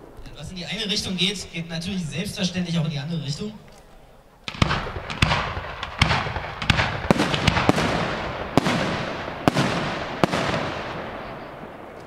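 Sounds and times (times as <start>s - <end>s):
rolling echo: 0.0s - 12.0s
fireworks bangs: 4.4s - 12.0s.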